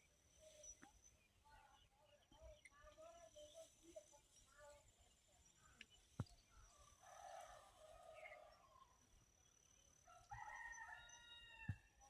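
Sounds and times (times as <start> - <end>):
rooster crowing: 10.1 - 11.9.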